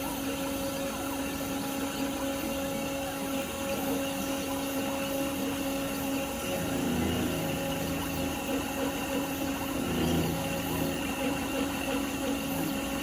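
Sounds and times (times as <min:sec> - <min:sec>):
spindle motor whining: 0:00.0 - 0:13.0
machine cutting noise: 0:06.3 - 0:13.0.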